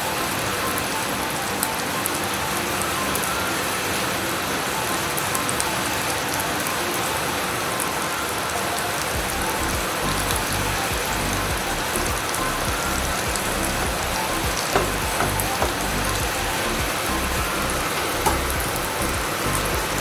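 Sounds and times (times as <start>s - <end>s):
food deep-frying in oil: 9.0s - 20.0s.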